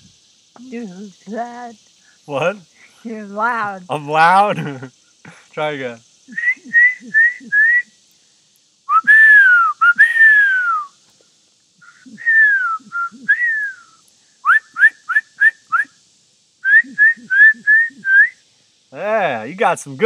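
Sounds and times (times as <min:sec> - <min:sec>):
person whistling bird calls: 0:06.3 - 0:07.9, 0:08.9 - 0:11.0, 0:11.8 - 0:16.0, 0:16.6 - 0:18.4.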